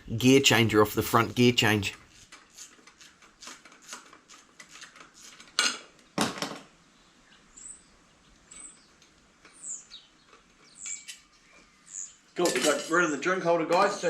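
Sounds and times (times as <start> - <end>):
metal clinks of tools and bolts: 12.4 - 13.0.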